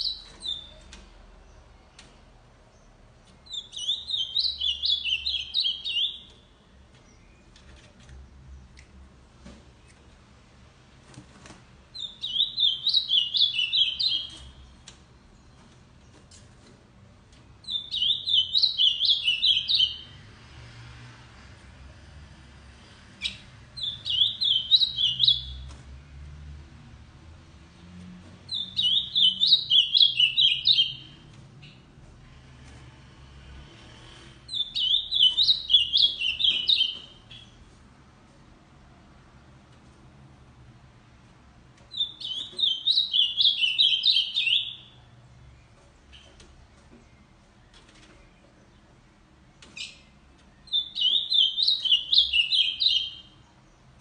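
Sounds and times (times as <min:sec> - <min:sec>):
bird singing clear pitch-bending notes: 0:00.0 - 0:00.9, 0:02.7 - 0:07.5, 0:12.0 - 0:14.8, 0:17.6 - 0:20.2, 0:23.2 - 0:25.6, 0:28.5 - 0:31.9, 0:34.4 - 0:37.6, 0:41.9 - 0:45.0, 0:49.8 - 0:53.4.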